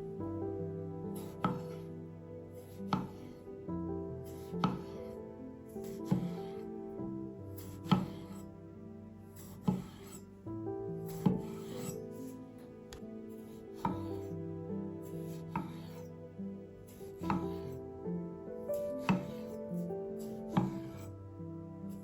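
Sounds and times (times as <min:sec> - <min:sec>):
soft background music: 0:00.0 - 0:22.0
knife cutting on cutting board: 0:01.2 - 0:01.8, 0:02.6 - 0:03.3, 0:04.3 - 0:05.0, 0:05.9 - 0:06.6, 0:07.6 - 0:08.4, 0:09.4 - 0:10.2, 0:11.1 - 0:12.0, 0:15.2 - 0:16.1, 0:18.9 - 0:19.6, 0:20.3 - 0:21.1.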